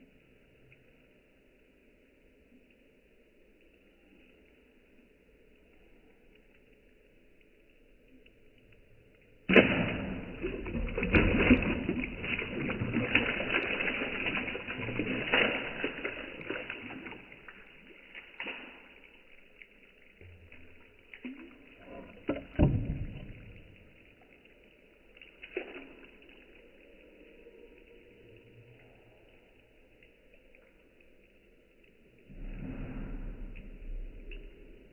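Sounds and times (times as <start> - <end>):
tile splashing into water: 9.5 - 19.2, 21.0 - 24.0
water sloshing in bucket: 9.5 - 19.3.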